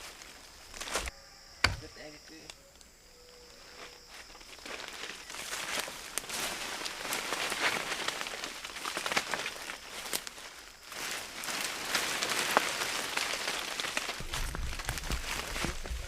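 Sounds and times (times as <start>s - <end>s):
rain pattering: 11.8s - 16.0s.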